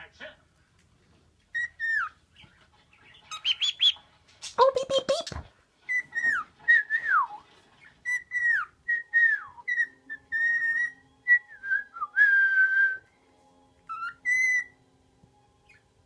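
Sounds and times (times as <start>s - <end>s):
pet bird whistling: 1.5s - 2.2s, 3.3s - 4.0s, 5.9s - 7.4s, 8.0s - 11.5s, 13.9s - 14.8s.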